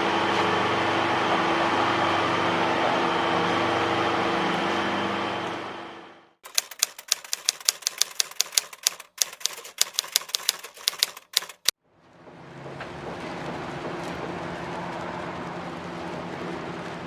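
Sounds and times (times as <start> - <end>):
steady machine hum: 0.0 - 6.4
sharp typewriter-like clicks: 6.4 - 11.8.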